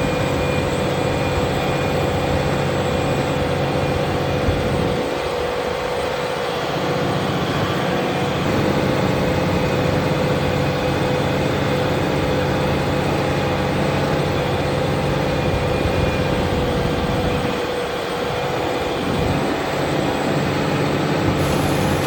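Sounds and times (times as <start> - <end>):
tractor engine running: 7.0 - 22.0
steady whine: 20.0 - 22.0.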